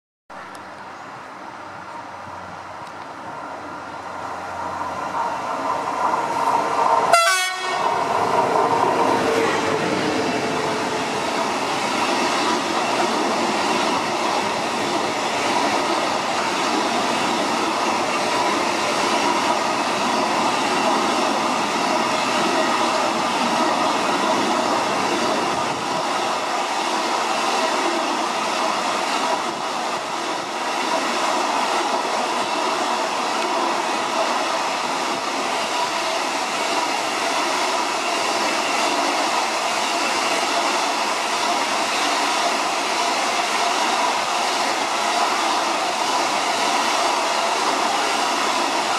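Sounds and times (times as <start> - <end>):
freight train wheels on rail: 0.3 - 48.9.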